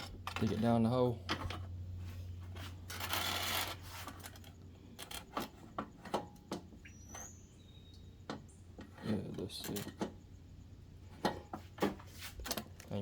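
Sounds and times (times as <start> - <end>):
cable rubbing and scraping: 2.4 - 5.6.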